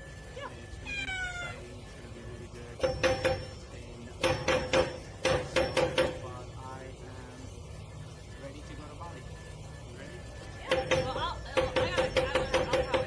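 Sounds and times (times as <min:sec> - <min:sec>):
cat meowing: 0:00.8 - 0:01.7.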